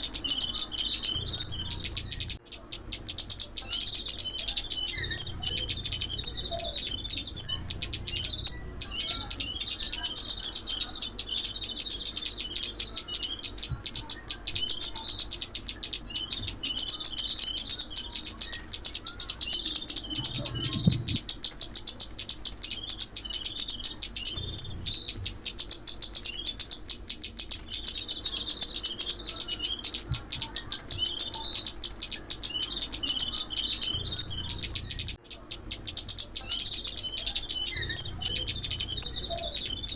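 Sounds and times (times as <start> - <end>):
sunbird chirping song: 0.0 - 39.9.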